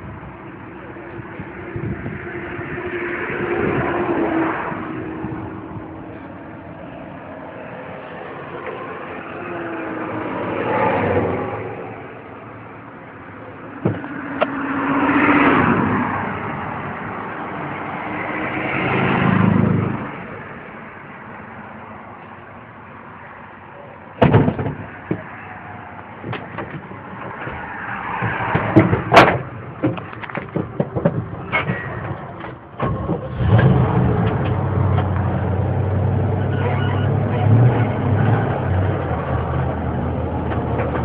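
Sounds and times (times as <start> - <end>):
sharp knocks: 13.8 - 14.6, 24.2 - 25.3, 26.2 - 32.1
pickup truck engine revving: 32.8 - 41.0.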